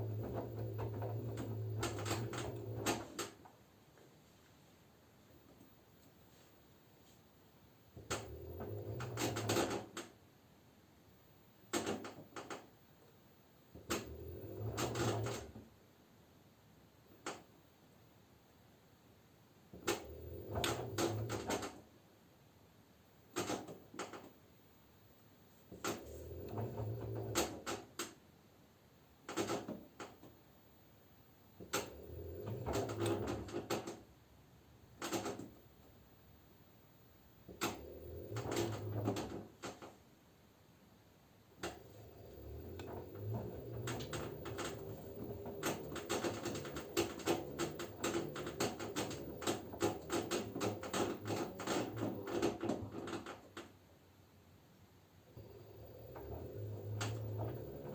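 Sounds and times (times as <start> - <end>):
washing machine motor hum: 0.0 - 3.6, 7.9 - 10.0, 13.6 - 15.7, 19.7 - 21.9, 25.6 - 28.0, 31.5 - 34.2, 37.1 - 40.0, 41.5 - 53.8, 55.3 - 57.9
laundry clattering in drum: 41.6 - 53.5
sharp clicks: 41.6 - 53.7.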